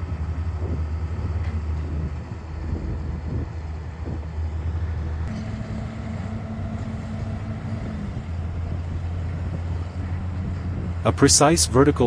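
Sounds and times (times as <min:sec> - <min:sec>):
diesel engine humming: 0:00.0 - 0:12.0
higher hum: 0:05.2 - 0:12.0.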